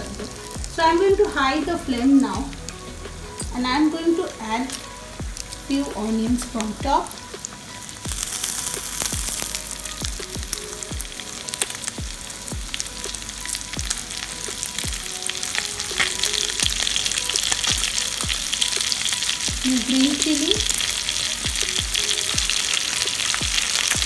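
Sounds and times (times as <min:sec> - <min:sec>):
meat sizzling in a pan: 0:00.0 - 0:24.0.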